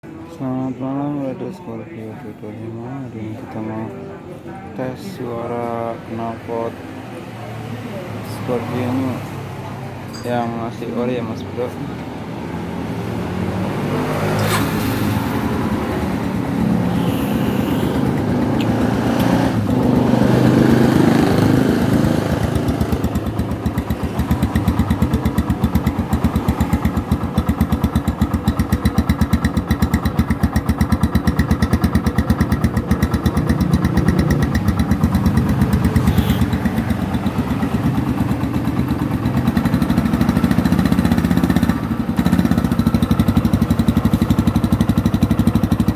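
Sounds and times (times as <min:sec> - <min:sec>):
motorcycle engine idling: 0:14.4 - 0:45.9.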